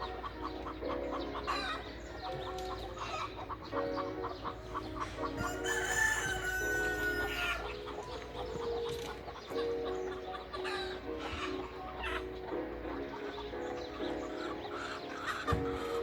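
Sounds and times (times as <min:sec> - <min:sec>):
music with sustained chords: 0:00.0 - 0:16.0
rooster crowing: 0:05.0 - 0:08.0.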